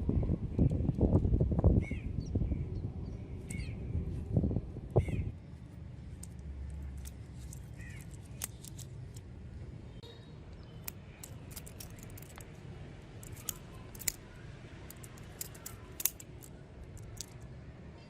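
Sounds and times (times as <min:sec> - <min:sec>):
steady low hum: 0:00.0 - 0:18.0
butterfly knife metal clicks: 0:06.2 - 0:09.2, 0:10.6 - 0:12.5, 0:13.2 - 0:14.3, 0:14.9 - 0:17.4.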